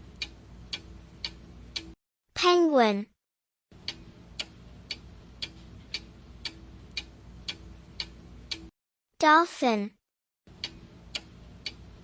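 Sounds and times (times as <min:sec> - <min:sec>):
clock ticking: 0:00.0 - 0:02.0, 0:03.8 - 0:08.7, 0:10.5 - 0:12.0.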